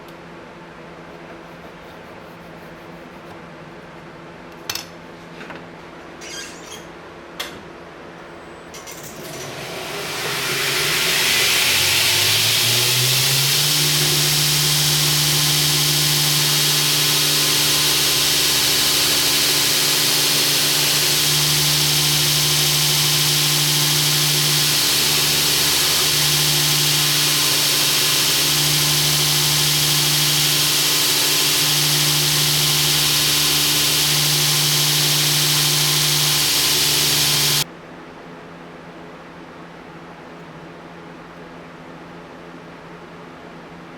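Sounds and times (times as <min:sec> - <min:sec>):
belt grinder motor hum: 0:09.2 - 0:37.6.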